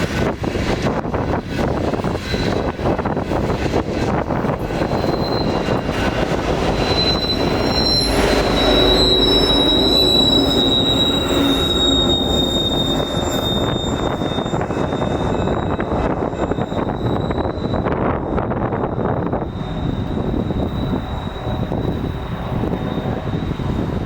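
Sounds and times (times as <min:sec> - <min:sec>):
freight train wheels clattering: 0:00.0 - 0:24.0
high wheel squeal: 0:01.5 - 0:24.0.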